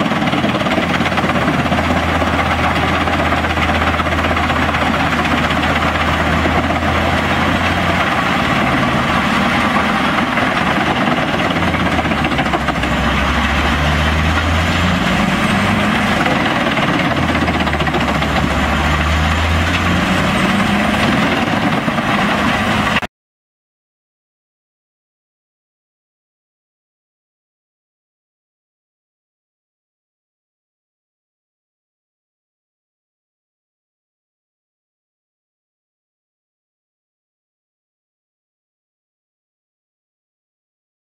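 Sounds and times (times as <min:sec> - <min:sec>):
wood chipper diesel engine under load: 0:00.0 - 0:23.1.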